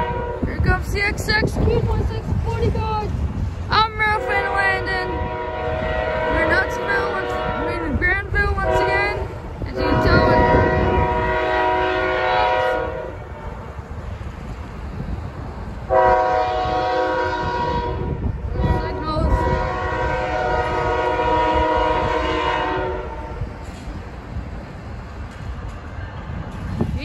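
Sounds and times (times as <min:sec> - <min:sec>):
locomotive air horn blasts: 0:00.0 - 0:00.5, 0:04.1 - 0:08.0, 0:08.6 - 0:13.6, 0:15.9 - 0:23.4
low rumble of train: 0:00.0 - 0:27.0.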